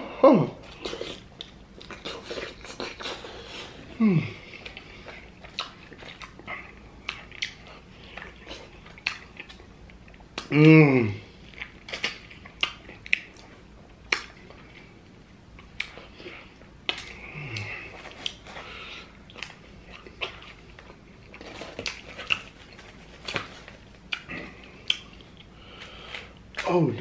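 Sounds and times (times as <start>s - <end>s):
wet chewing: 0.6s - 10.6s, 11.4s - 26.7s
person humming mm: 3.9s - 4.5s, 10.4s - 11.3s, 17.2s - 17.9s
lip smacks: 4.6s - 10.8s, 11.5s - 14.9s, 15.6s - 26.8s.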